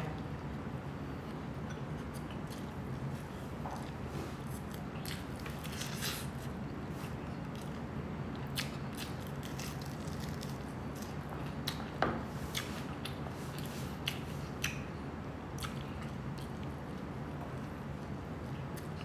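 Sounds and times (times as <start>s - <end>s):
steady low hum: 0.0s - 19.0s
chewing crispy pork: 1.2s - 19.0s.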